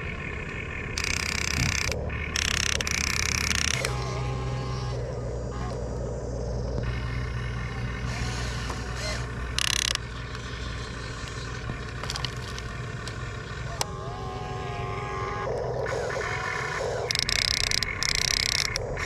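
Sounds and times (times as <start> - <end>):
electric motors and gearboxes whirring: 0.0 - 19.0
clicks: 1.0 - 4.1, 9.5 - 10.4, 17.1 - 18.9.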